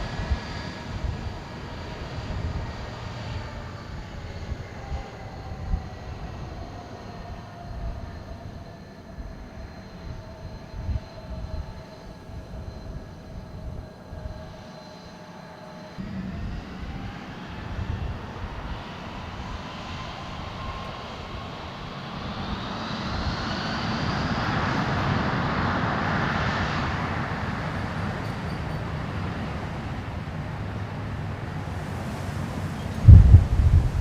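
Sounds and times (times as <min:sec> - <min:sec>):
engine whine: 0:00.0 - 0:34.0
jet airliner engine roar: 0:00.0 - 0:34.0
loud low thud: 0:33.1 - 0:34.0.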